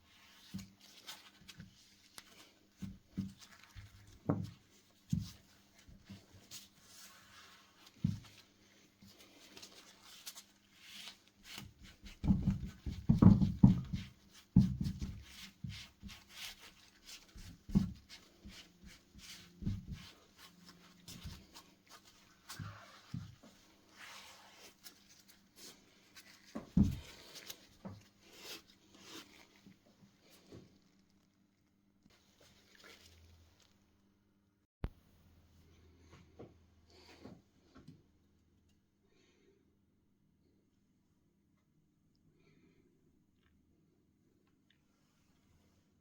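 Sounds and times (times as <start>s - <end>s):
soft knocks and rubbing: 11.5s - 29.8s.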